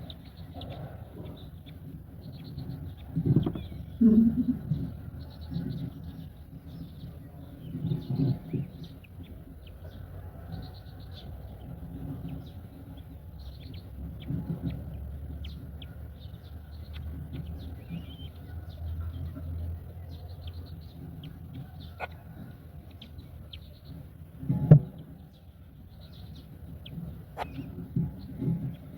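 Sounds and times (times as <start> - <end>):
birds chirping: 0.0 - 28.9
wind rumbling: 0.0 - 28.9
loud thump: 24.5 - 25.0.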